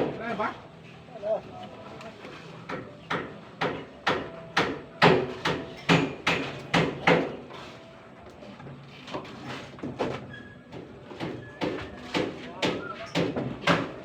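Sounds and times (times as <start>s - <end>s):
hand hammer striking: 2.7s - 7.3s.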